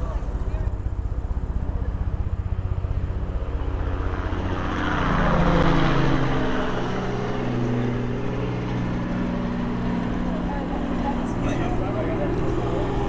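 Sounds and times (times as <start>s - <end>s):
loud boat engine drone: 0.0s - 13.0s
low pulsing boat engine: 0.0s - 13.0s.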